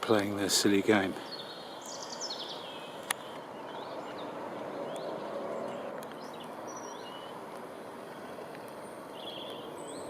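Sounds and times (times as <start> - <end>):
outdoor background hiss: 0.0 - 10.0
faint bird chirps: 1.2 - 7.4, 8.8 - 10.0.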